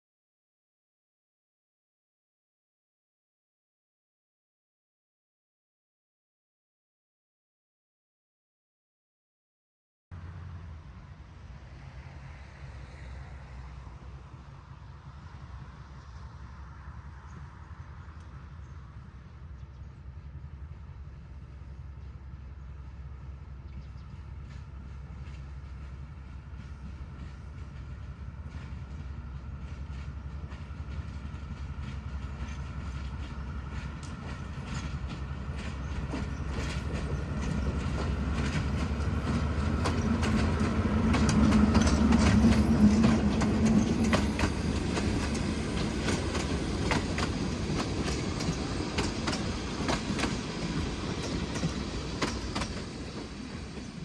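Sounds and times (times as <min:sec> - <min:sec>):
diesel locomotive engine drone: 0:10.1 - 0:54.0
wheels clicking over rail joints: 0:23.8 - 0:54.0.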